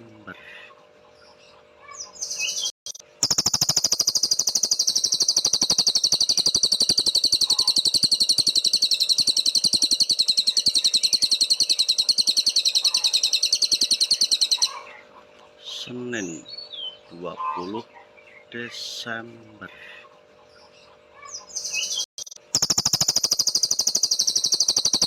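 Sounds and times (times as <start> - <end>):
songbird chirps: 0.2 - 25.0
fast high-pitched bird trill: 1.8 - 14.9, 21.2 - 25.0.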